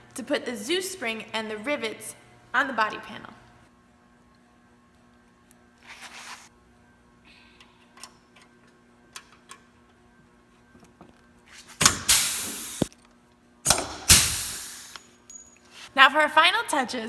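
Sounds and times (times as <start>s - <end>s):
rivet gun hissing and snapping: 11.8s - 12.9s, 13.7s - 15.1s.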